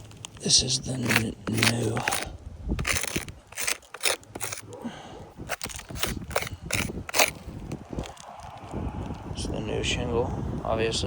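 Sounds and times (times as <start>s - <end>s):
crunching steps on roof shingles: 0.0s - 4.8s, 5.4s - 8.8s.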